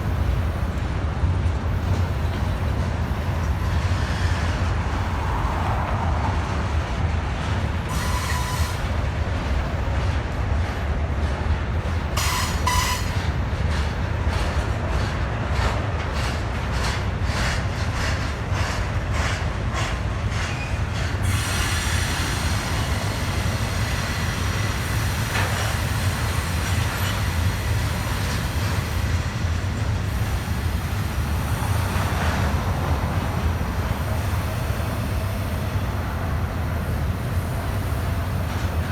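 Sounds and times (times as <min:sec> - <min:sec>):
freight train rumbling: 0:00.0 - 0:38.9
train wheel squeals: 0:01.9 - 0:04.6, 0:07.9 - 0:09.0, 0:12.2 - 0:13.8, 0:15.6 - 0:33.3.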